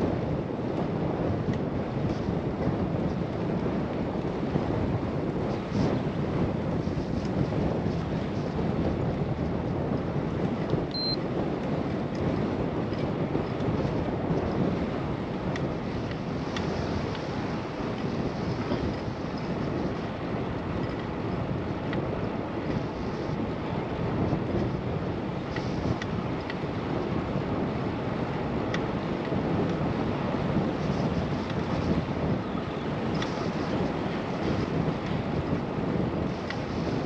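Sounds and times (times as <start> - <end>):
wind rushing over microphone: 0.0 - 37.0
brief high tone: 11.0 - 11.2.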